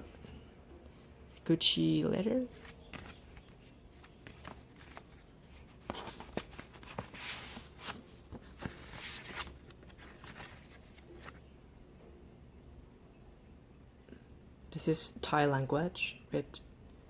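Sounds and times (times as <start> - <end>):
paper rustling and sliding: 2.5 - 11.4
paper swishes: 2.5 - 11.4.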